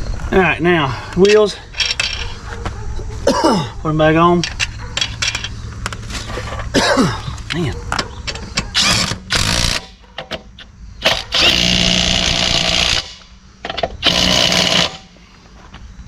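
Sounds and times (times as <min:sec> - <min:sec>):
impact wrench running: 0:08.6 - 0:09.9, 0:11.0 - 0:15.2.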